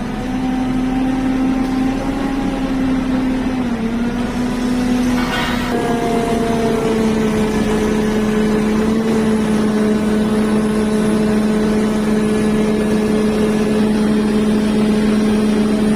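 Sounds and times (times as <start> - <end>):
engine droning with whine: 0.0 - 15.9.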